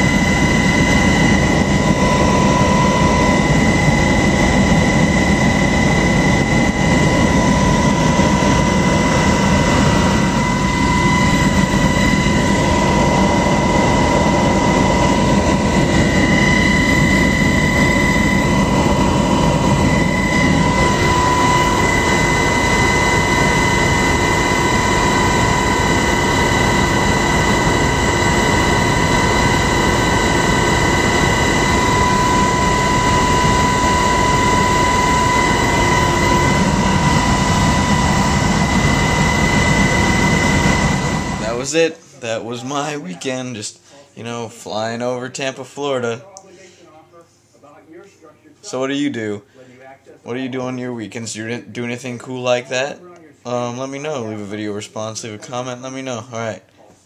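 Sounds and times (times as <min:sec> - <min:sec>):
helicopter engine and rotor noise: 0:00.0 - 0:43.2
high whine: 0:00.0 - 0:43.8.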